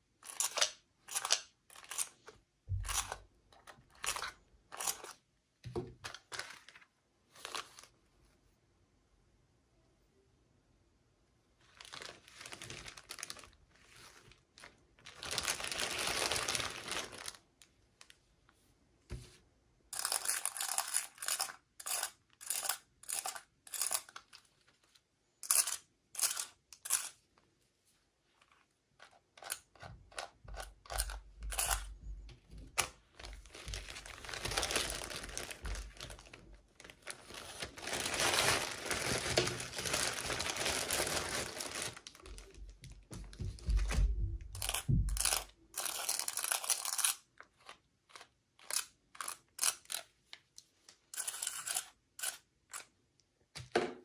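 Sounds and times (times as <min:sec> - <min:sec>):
packaging tearing and crinkling: 0:11.8 - 0:13.6, 0:14.6 - 0:17.4, 0:33.2 - 0:42.5.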